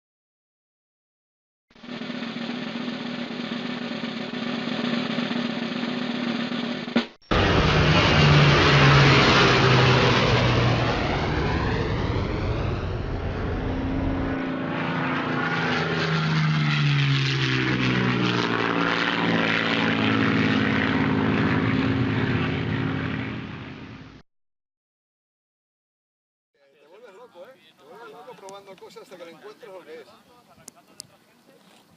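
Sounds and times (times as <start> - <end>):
model airplane engine and propeller: 1.7 - 24.2.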